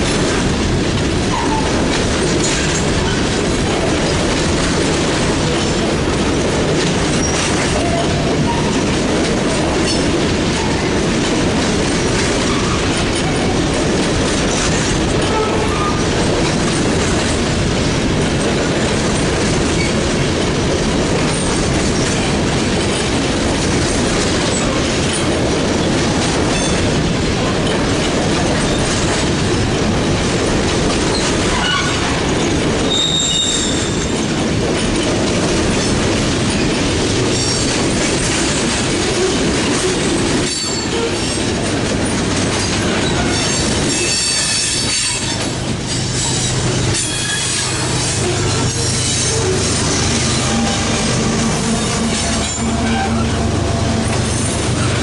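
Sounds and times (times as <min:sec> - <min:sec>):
freight train cars rolling: 0:00.0 - 0:55.0
high wheel squeals: 0:32.9 - 0:34.1, 0:46.0 - 0:55.0.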